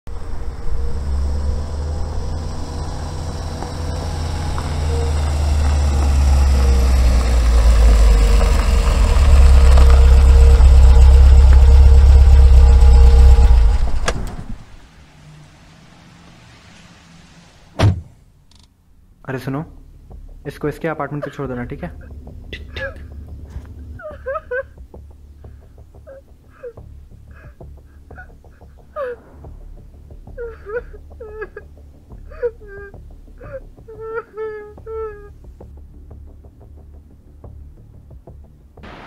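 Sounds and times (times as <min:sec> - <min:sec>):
car engine running: 0:00.1 - 0:18.2, 0:21.2 - 0:28.5.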